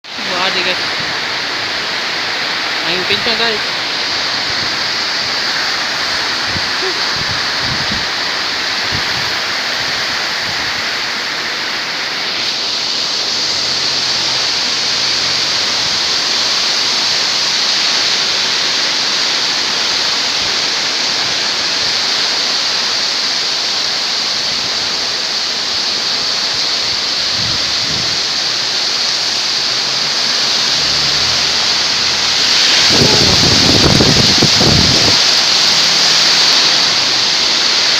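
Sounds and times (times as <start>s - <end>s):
strong wind rushing: 3.6s - 10.9s, 26.8s - 37.9s.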